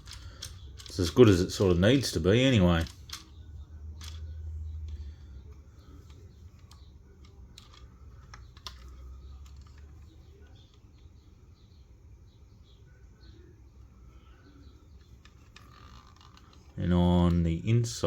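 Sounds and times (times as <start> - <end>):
model car handling clicks and taps: 0.0 - 3.4, 4.0 - 5.1, 5.8 - 11.1.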